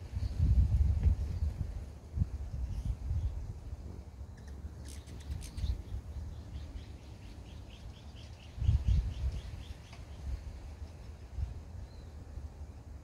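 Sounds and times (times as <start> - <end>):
wind rumbling on microphone: 0.0 - 13.0
small bird calling: 4.3 - 11.2.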